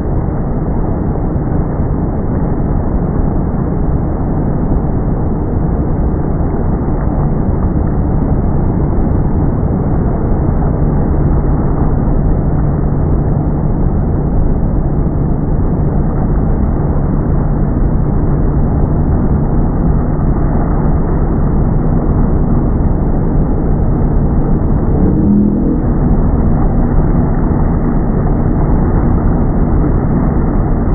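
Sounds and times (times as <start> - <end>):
boat motor running: 4.1 - 30.9.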